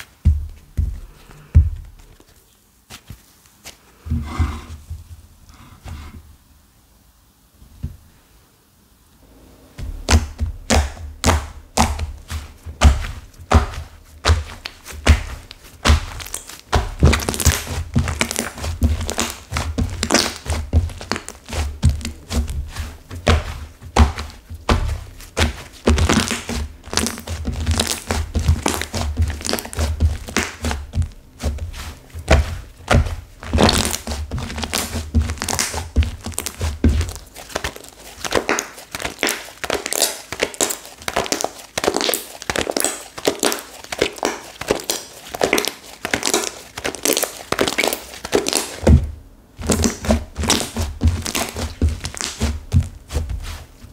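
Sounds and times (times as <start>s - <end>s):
soft low thunks: 0.2s - 2.2s, 9.6s - 14.6s
hands squishing clay slime: 9.8s - 53.9s.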